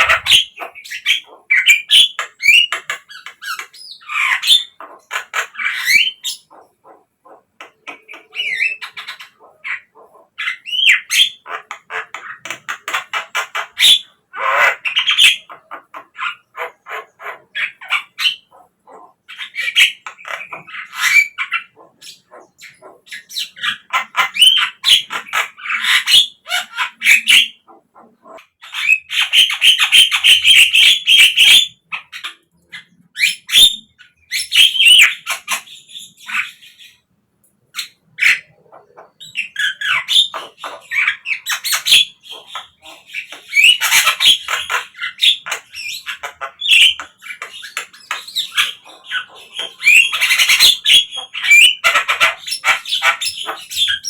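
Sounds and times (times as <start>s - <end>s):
myna squawky chatter and whistles: 0.0s - 2.8s, 37.8s - 54.0s.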